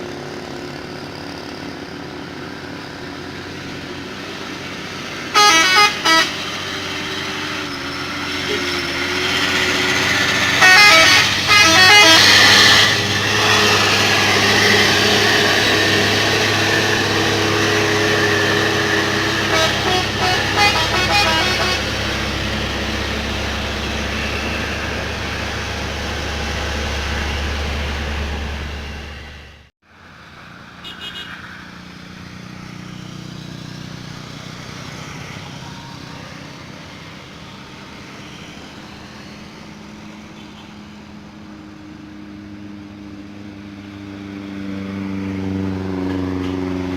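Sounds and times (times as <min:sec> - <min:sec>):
heavy truck engine under load: 0:00.0 - 0:29.7
truck horn honks: 0:05.3 - 0:26.5, 0:30.8 - 0:31.5.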